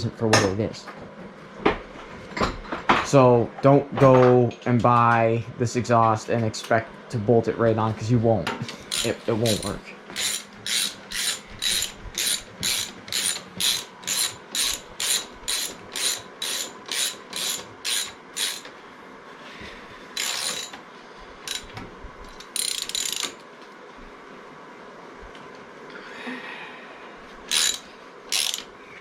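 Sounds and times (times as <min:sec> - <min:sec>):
ratchet wrench clicking: 0:08.9 - 0:18.7, 0:20.2 - 0:20.8, 0:21.5 - 0:21.7, 0:22.4 - 0:23.4, 0:27.5 - 0:28.7.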